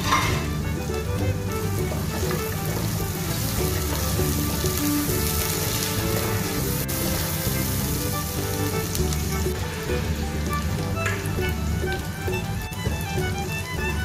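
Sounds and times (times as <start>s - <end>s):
background music: 0.0s - 14.0s
vegetables sizzling in oil: 1.6s - 11.9s.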